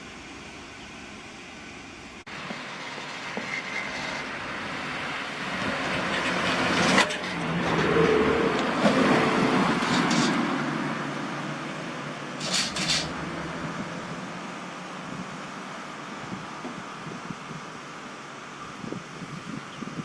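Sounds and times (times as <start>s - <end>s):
truck engine driving past: 2.3s - 15.9s.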